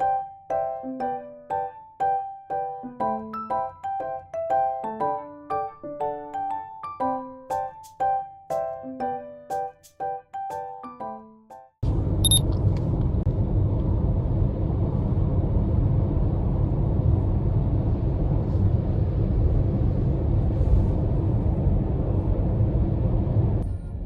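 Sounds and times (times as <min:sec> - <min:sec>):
car driving rumble: 0:11.8 - 0:24.0
short high beep: 0:12.2 - 0:12.4.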